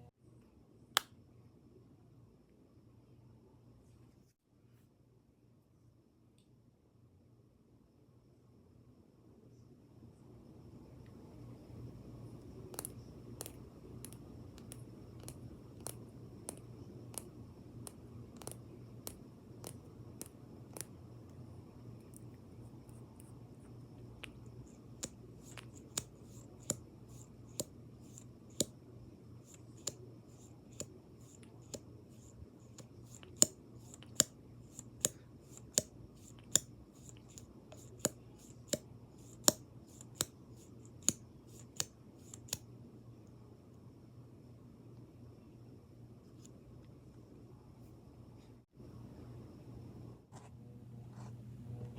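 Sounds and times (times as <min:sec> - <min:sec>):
low electrical hum: 0:00.0 - 0:51.9
taps and clicks on makeup products: 0:32.8 - 0:42.6.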